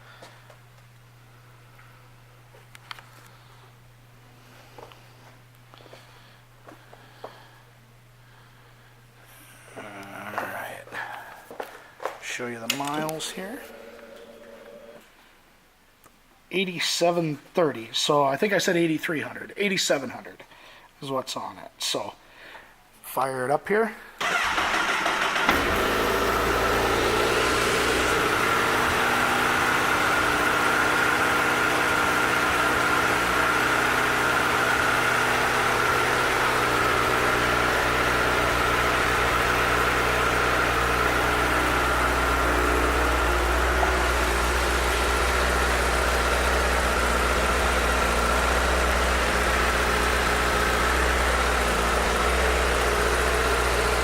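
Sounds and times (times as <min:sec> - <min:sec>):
motorcycle engine starting and idling: 0:24.2 - 0:54.0.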